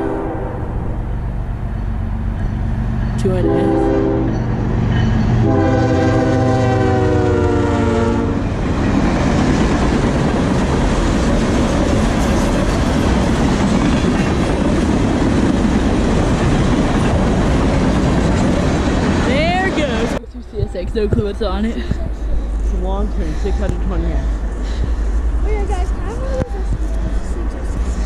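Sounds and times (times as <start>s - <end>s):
locomotive horn: 0.0s - 0.8s, 3.3s - 4.5s, 5.4s - 8.5s
train rumble: 0.0s - 28.0s.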